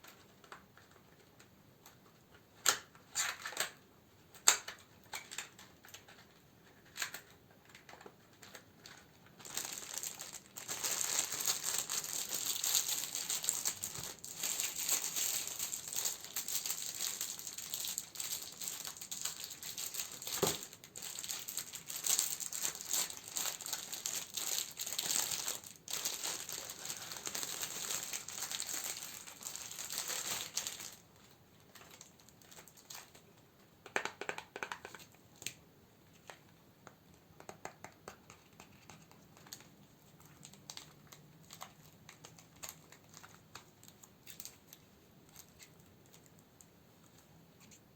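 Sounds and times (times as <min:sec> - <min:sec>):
candle wrappings crinkling: 0:04.6 - 0:33.3, 0:38.3 - 0:47.8.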